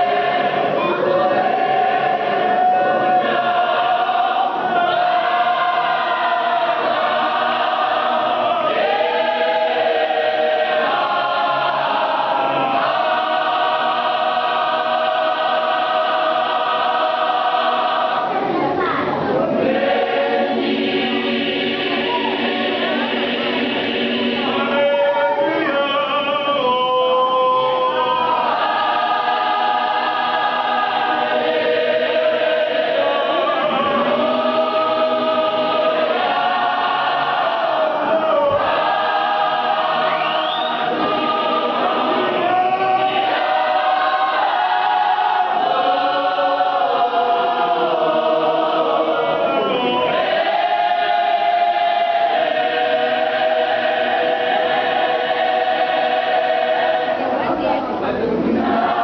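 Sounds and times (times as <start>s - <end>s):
choir singing a hymn: 0.0s - 59.0s.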